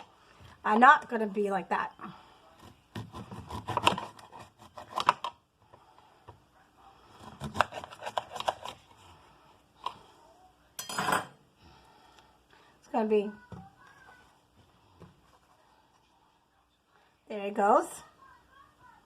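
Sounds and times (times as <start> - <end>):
utensils and dishes clinking: 10.8 - 11.4.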